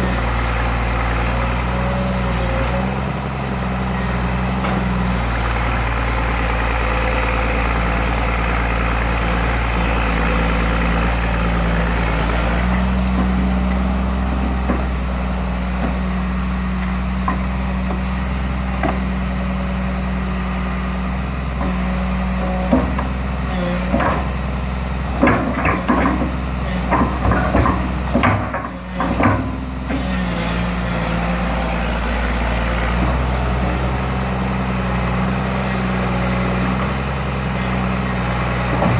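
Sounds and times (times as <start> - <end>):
excavator diesel engine running: 0.0 - 38.9
digging knocks and clatters: 25.2 - 30.1.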